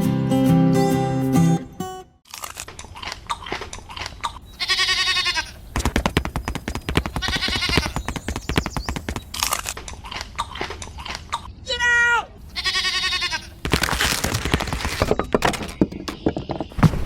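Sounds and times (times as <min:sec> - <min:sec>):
crunching clicks: 0:02.3 - 0:04.4, 0:05.8 - 0:10.9, 0:13.5 - 0:16.2
animal bleating: 0:04.6 - 0:05.6, 0:07.1 - 0:08.0, 0:12.5 - 0:14.0.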